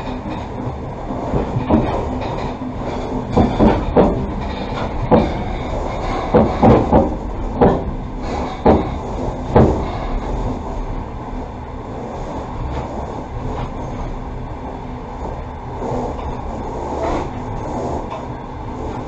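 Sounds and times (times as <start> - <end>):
train wheels clacking: 0.0 - 10.5
train rumbling on track: 0.0 - 19.0.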